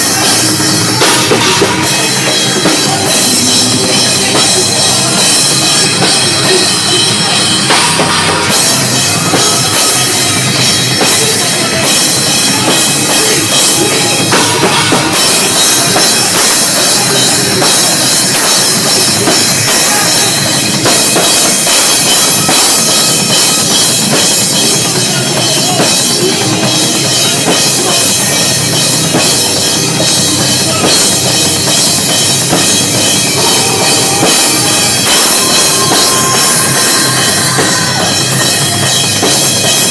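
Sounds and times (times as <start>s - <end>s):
live metal band playing: 0.0s - 39.9s.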